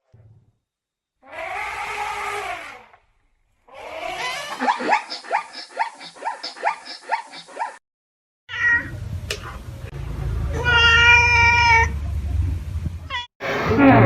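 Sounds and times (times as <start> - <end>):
dog yelping: 3.8 - 7.8.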